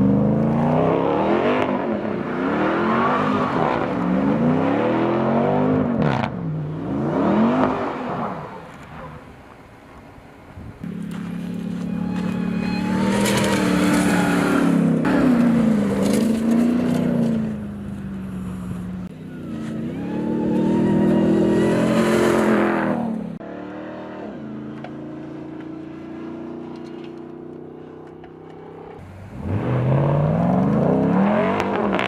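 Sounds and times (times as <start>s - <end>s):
truck engine revving: 10.8s - 24.8s, 29.0s - 32.0s.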